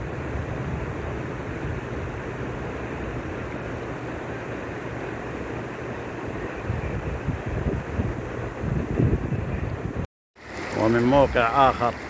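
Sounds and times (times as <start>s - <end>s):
flood water rushing: 0.0s - 12.0s.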